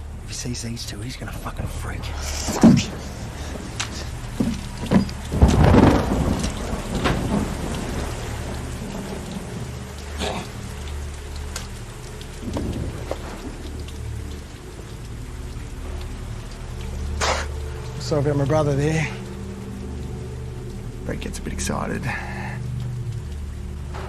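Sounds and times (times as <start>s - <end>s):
heavy rain: 0.0s - 24.0s
thunder rumbling: 1.3s - 19.6s.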